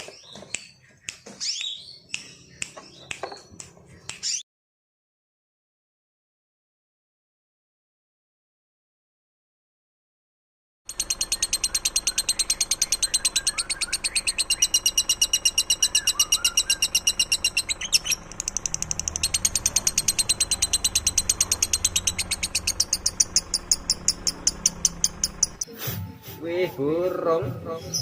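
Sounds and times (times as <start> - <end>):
songbird singing fast trill: 10.9 - 25.6.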